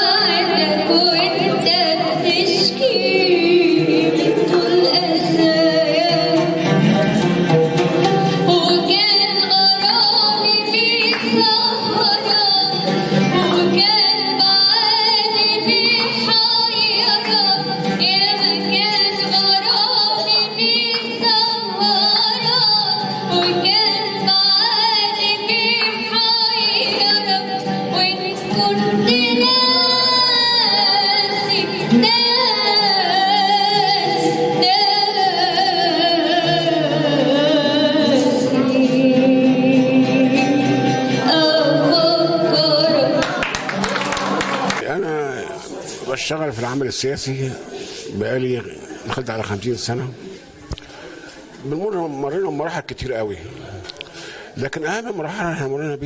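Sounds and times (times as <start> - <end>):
instrumental accompaniment: 0.0 - 35.3
woman singing: 0.0 - 44.7.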